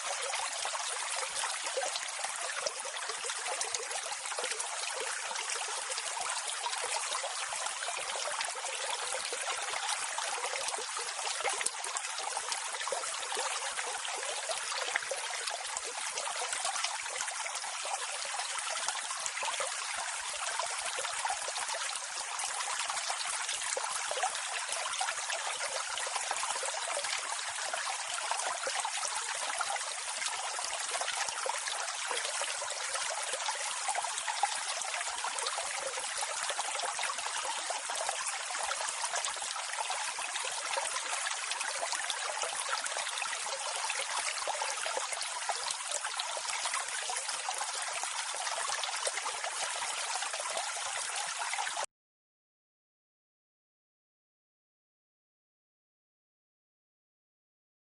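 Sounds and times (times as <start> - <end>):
waterfall and stream flowing: 0.0 - 51.9.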